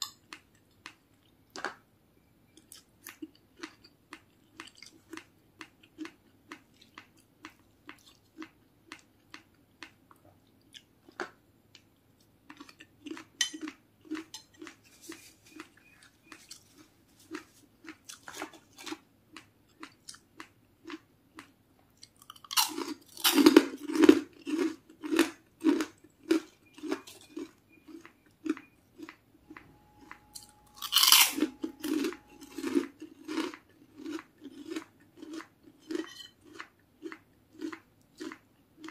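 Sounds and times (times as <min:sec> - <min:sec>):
person chewing food: 0:00.0 - 0:01.8, 0:02.5 - 0:38.9
crunching bites of fried food: 0:12.5 - 0:29.2, 0:30.8 - 0:38.9.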